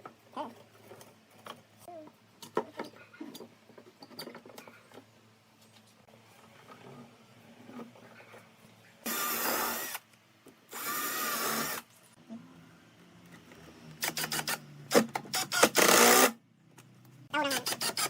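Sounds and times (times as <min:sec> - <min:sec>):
power drill running: 0:09.0 - 0:10.0, 0:10.7 - 0:11.8, 0:15.3 - 0:16.4.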